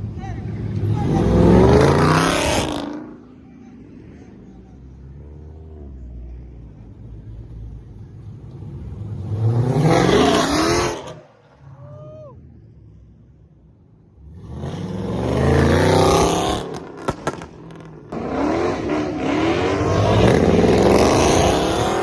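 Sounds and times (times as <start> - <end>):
car engines revving: 0.0 - 11.7, 12.4 - 22.0
low engine rumble: 3.2 - 9.1.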